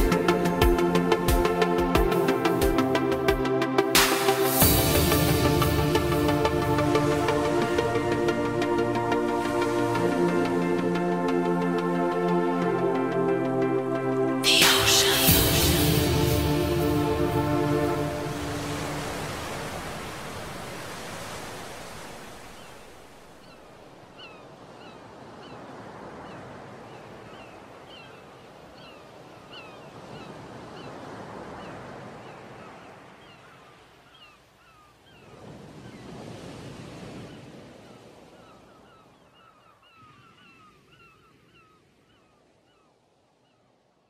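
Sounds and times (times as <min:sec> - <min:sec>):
sea waves washing in: 0:00.0 - 0:33.4.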